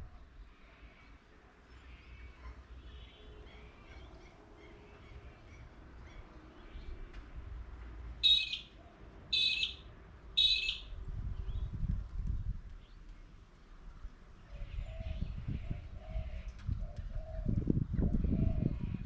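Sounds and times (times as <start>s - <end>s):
faint bird chirps: 8.2s - 8.7s, 9.4s - 9.8s, 10.4s - 10.8s.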